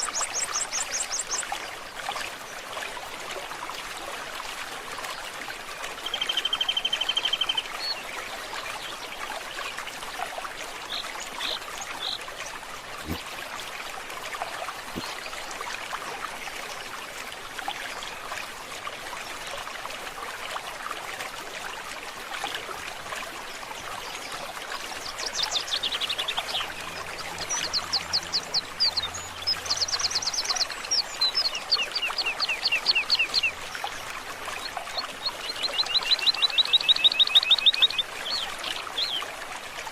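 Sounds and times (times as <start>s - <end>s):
stream trickling: 0.0s - 39.9s
birds singing: 25.0s - 33.7s, 34.6s - 39.2s.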